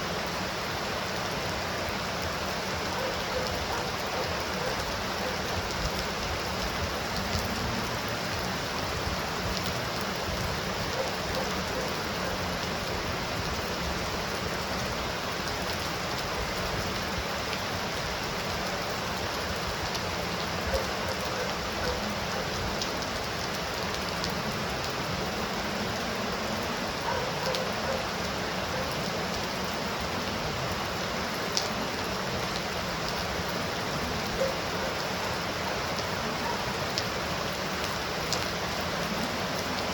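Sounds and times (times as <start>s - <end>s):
heavy rain hissing: 0.0s - 39.9s
raindrop ticks: 37.8s - 38.5s.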